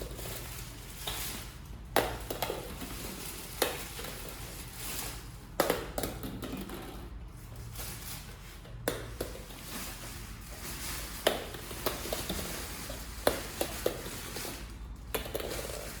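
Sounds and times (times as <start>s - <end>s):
small balls shifting and rustling: 0.0s - 16.0s.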